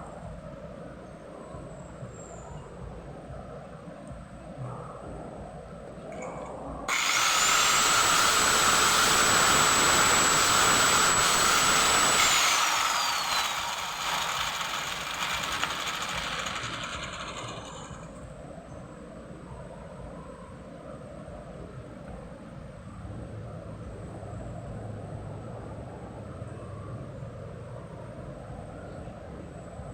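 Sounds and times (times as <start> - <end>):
power tool motor whining: 6.9 - 18.2.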